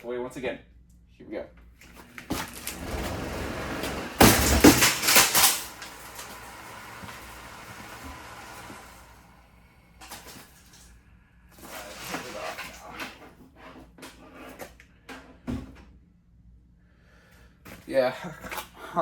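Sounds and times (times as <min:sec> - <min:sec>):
fan blades clattering and knocking: 0:01.8 - 0:09.2
box fan humming: 0:01.8 - 0:10.5
fan toppling with heavy thump: 0:02.2 - 0:08.9.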